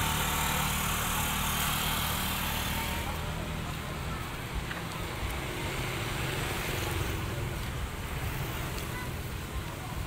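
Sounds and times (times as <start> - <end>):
vehicle engine running: 0.0 - 7.8.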